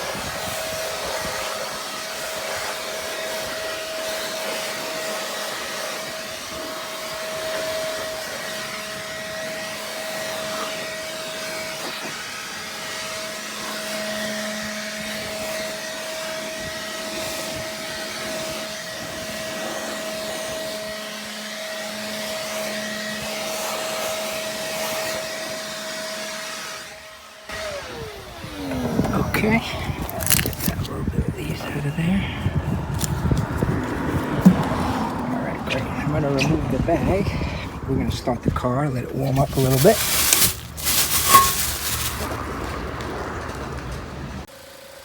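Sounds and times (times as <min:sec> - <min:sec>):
electric blower motor whining: 0:00.0 - 0:38.2, 0:38.8 - 0:43.5
motor spinning down: 0:27.5 - 0:30.8.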